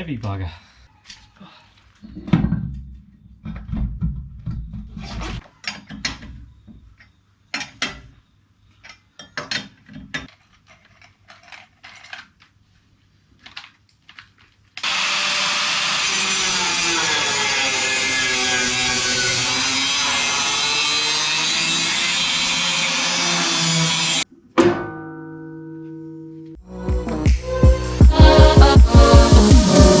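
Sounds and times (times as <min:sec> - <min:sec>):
loud steady noise: 0:28.0 - 0:30.0.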